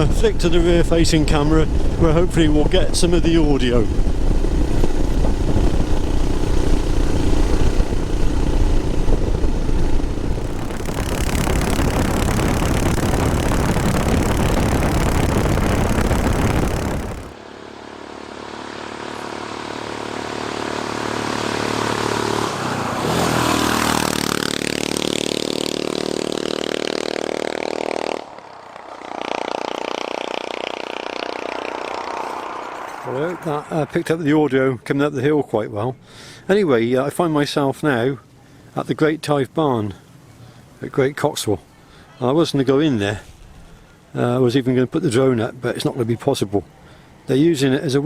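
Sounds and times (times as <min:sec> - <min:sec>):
wind rush on microphone: 0:00.0 - 0:17.4
motorcycle engine pulling uphill: 0:00.0 - 0:34.0.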